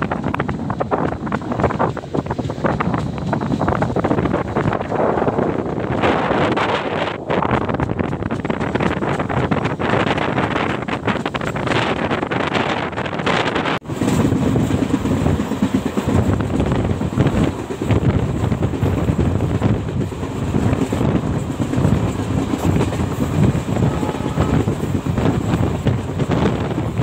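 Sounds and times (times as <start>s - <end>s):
train rumbling on track: 0.0s - 27.0s
wind buffeting microphone: 0.0s - 27.0s.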